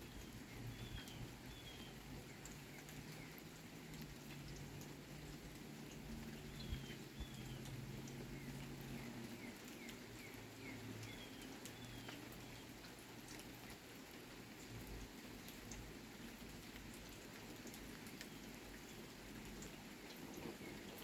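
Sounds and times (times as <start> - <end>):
bird chirping: 0.0 - 3.4, 6.3 - 12.7
light rain falling: 0.0 - 21.0
water drips: 0.0 - 21.0.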